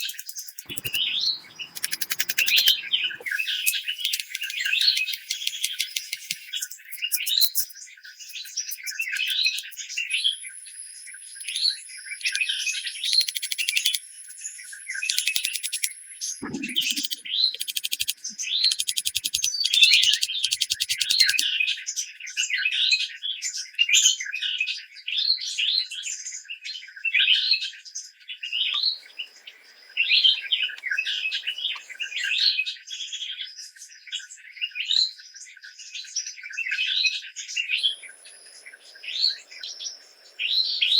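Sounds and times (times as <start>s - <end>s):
rattling bird trills: 0.0s - 9.8s
birds chirping: 0.0s - 21.4s, 28.6s - 32.5s, 37.8s - 40.9s.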